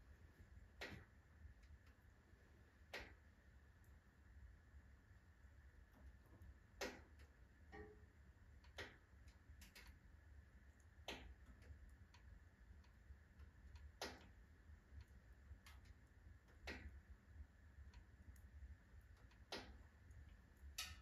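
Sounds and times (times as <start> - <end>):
low steady rumble: 0.0 - 21.0
wood fire crackling: 0.0 - 21.0
sharp pops from fire: 2.9 - 3.2, 6.8 - 7.3, 8.7 - 10.0, 11.0 - 11.7, 13.8 - 14.4, 16.5 - 17.0, 19.3 - 19.8.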